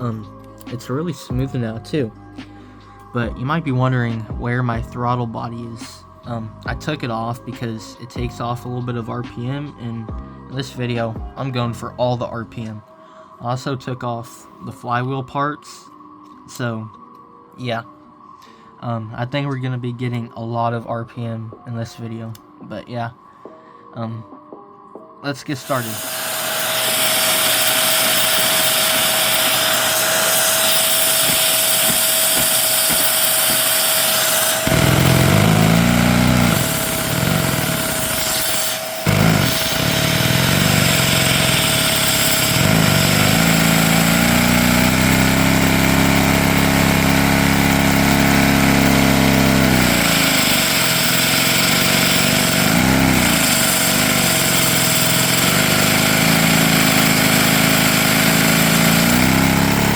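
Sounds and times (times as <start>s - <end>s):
small engine running: 0.0s - 1.6s, 25.6s - 59.9s
vacuum cleaner whine: 25.6s - 59.9s.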